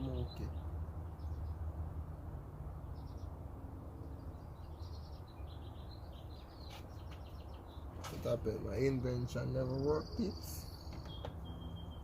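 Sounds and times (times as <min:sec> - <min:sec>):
birds chirping: 0:00.0 - 0:02.0, 0:02.7 - 0:12.0.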